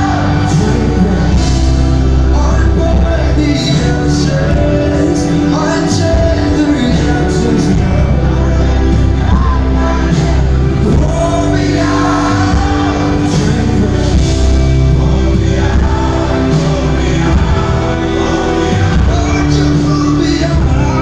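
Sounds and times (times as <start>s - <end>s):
person singing: 0.0s - 21.0s
pop-rock band playing a ballad: 0.0s - 21.0s.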